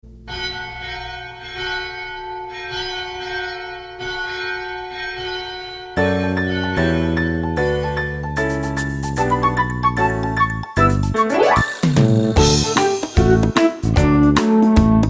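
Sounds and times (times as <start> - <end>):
church bell ringing: 0.3 - 8.2.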